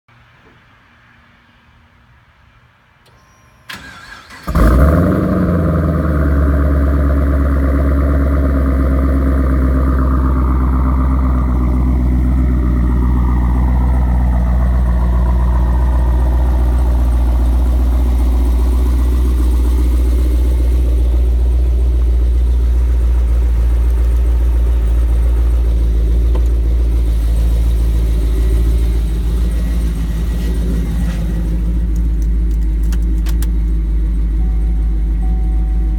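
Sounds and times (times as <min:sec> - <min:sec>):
car engine starting and idling: 0:03.0 - 0:35.9
starter click: 0:31.9 - 0:33.6.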